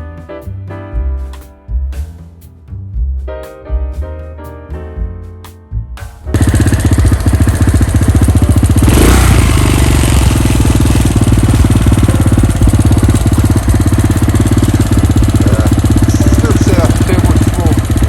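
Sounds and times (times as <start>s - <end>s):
quad bike engine idling: 6.3s - 18.0s.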